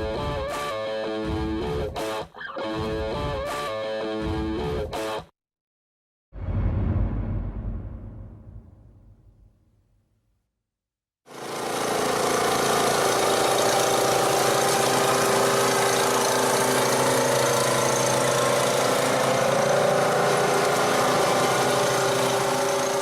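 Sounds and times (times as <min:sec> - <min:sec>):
chainsaw engine running: 0:11.3 - 0:23.0.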